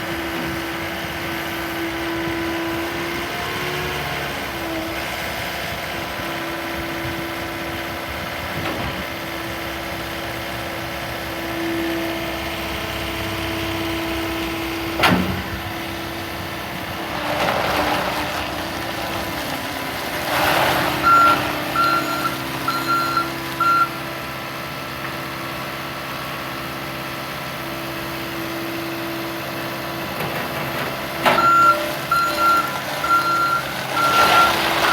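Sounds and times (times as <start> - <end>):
diesel engine running: 0.0 - 34.9
backup alarm beeping: 21.0 - 24.0, 31.4 - 34.9.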